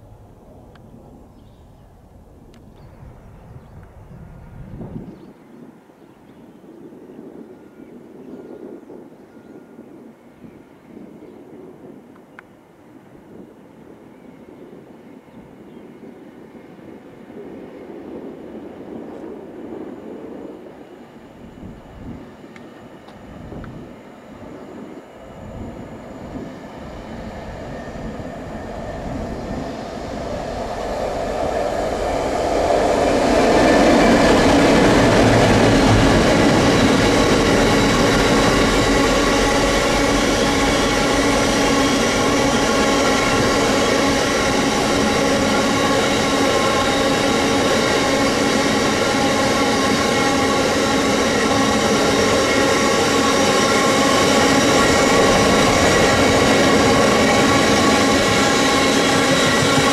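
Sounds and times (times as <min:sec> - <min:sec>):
train rumbling: 0:00.0 - 0:06.0, 0:06.7 - 0:59.9
steady tones: 0:21.0 - 0:59.9.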